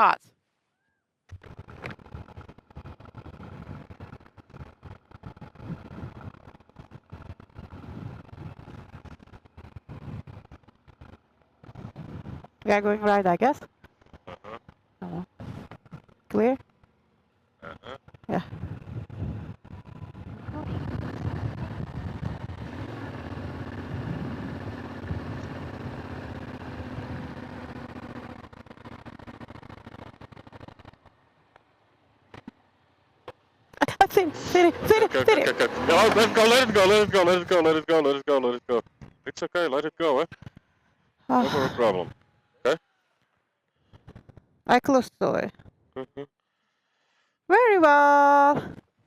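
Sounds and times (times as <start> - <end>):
motorcycle engine running: 1.3 - 44.6
wind buffeting microphone: 18.4 - 27.6.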